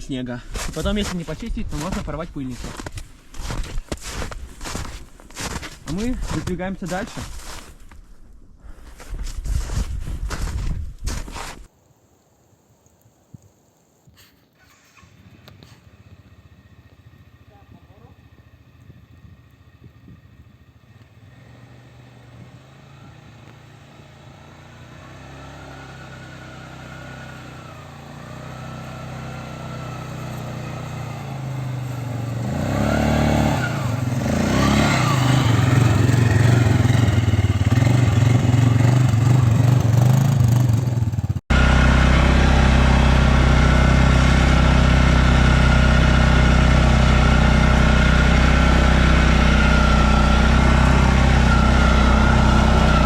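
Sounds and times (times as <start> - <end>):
quad bike engine revving: 14.7 - 53.0.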